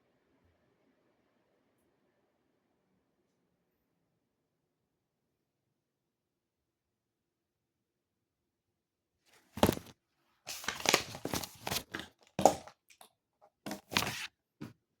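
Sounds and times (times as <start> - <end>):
rustling and crinkling: 9.3 - 12.8, 13.7 - 14.3.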